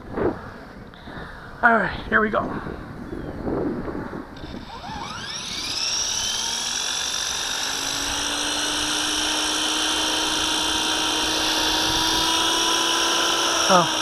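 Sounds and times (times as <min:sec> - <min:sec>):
rc helicopter motor whine: 0:04.4 - 0:14.0.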